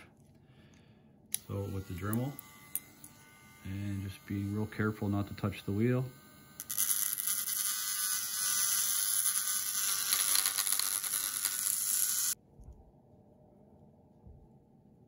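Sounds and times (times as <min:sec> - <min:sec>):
rotary tool grinding metal: 0:01.4 - 0:12.4.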